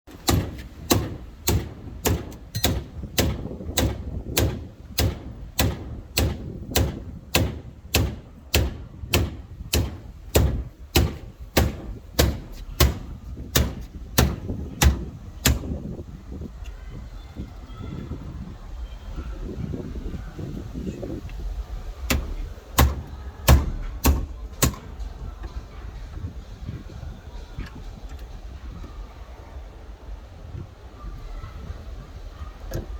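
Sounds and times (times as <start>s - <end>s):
hammer blows: 0.1s - 15.9s.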